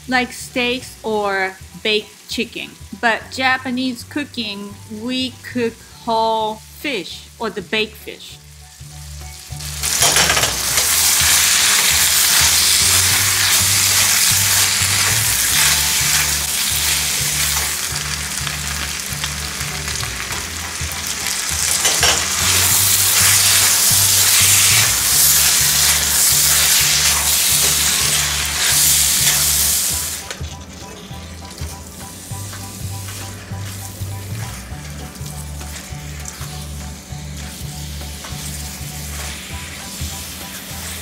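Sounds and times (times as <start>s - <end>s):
background music bass line: 0.0s - 41.0s
food sizzling in a pan: 0.0s - 41.0s.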